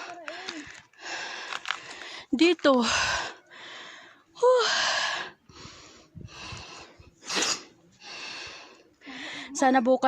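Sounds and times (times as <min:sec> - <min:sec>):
person breathing hard: 0:00.0 - 0:07.1.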